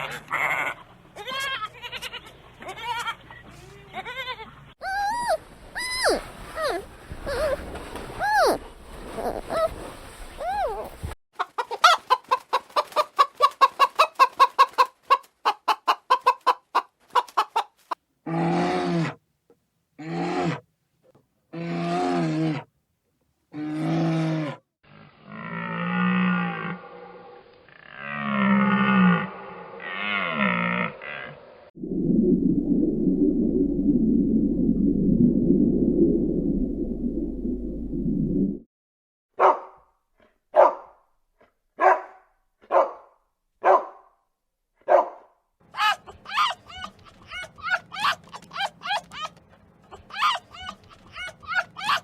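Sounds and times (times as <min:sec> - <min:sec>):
dog barking: 0:39.4 - 0:39.8, 0:40.5 - 0:41.0, 0:41.8 - 0:44.1, 0:44.8 - 0:46.6.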